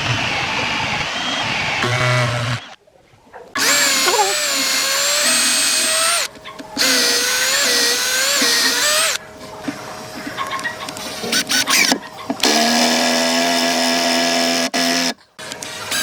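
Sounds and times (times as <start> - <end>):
electric drill whining into wood: 0.0 - 2.8, 3.6 - 9.2, 11.3 - 16.0.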